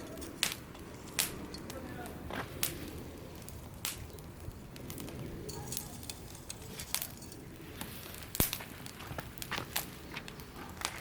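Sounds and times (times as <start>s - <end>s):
wood fire crackling: 0.0s - 11.0s
sharp pops and snaps: 0.3s - 5.2s, 7.8s - 11.0s.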